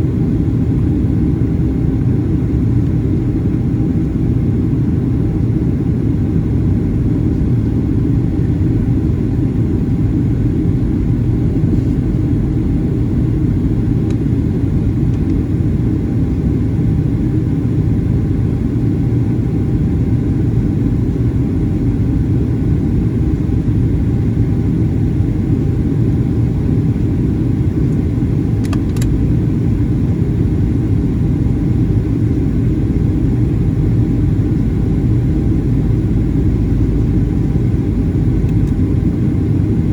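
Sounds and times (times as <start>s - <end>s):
jet engines rumbling in flight: 0.0s - 39.9s
faint click: 28.6s - 29.1s.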